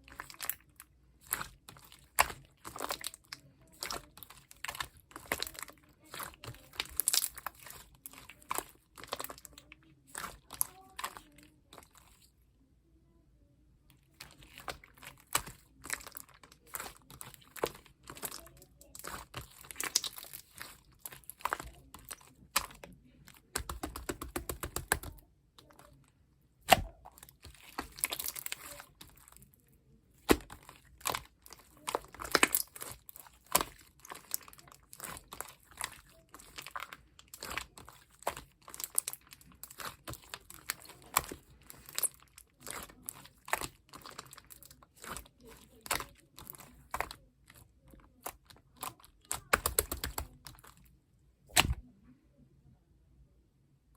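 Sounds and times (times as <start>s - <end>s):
slime squished by hand: 0.0s - 12.3s, 14.0s - 26.0s, 26.6s - 50.9s, 51.5s - 51.9s.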